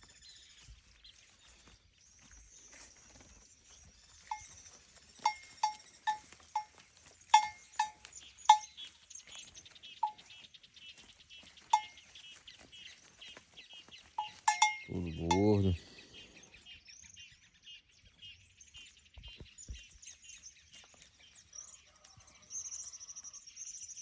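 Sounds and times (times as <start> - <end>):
animal bell clanking: 4.3 - 9.0, 10.0 - 10.2, 11.7 - 12.1, 14.2 - 15.8.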